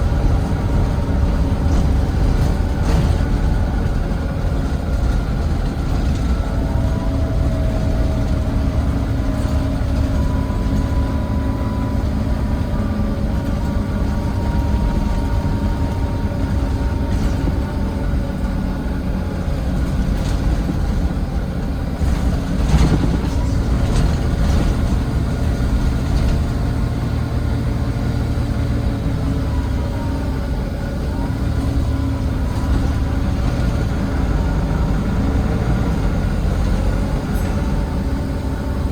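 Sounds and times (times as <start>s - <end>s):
bus diesel engine rumbling: 0.0s - 38.9s
knocks and rattles: 22.0s - 26.6s.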